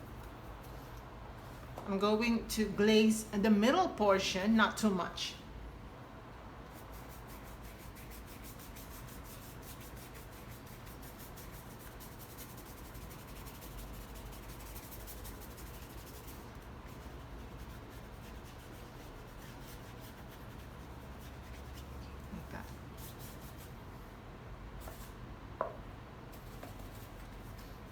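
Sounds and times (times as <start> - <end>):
paintbrush rubbing on surface: 6.7 - 23.8, 26.4 - 27.9.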